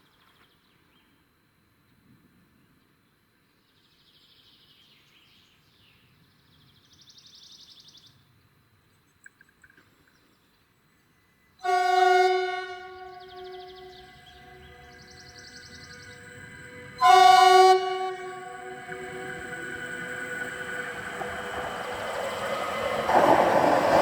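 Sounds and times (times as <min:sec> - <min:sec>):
birds trilling faintly: 0:09.5 - 0:24.0
train horn blast: 0:11.6 - 0:21.3.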